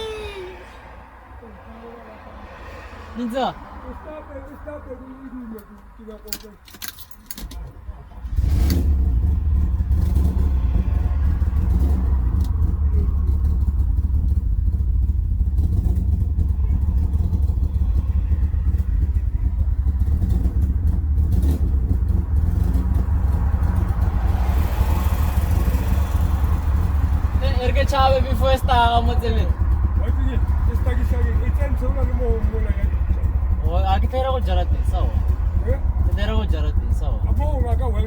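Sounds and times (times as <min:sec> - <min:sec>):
car engine idling with low drone: 0:03.8 - 0:38.0.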